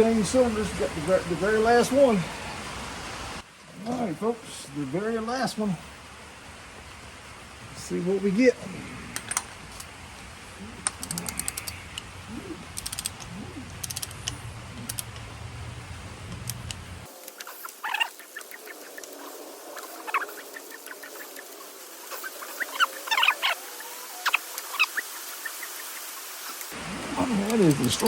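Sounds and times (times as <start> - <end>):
low hum: 5.8 - 17.1
ratchet wrench clicking: 10.8 - 12.1, 12.7 - 15.3
high squeaky chirps: 17.4 - 26.4.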